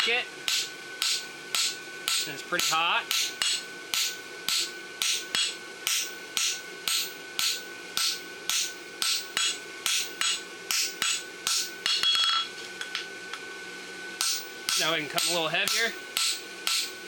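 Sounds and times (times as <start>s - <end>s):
steady metallic ring: 0.5s - 12.6s.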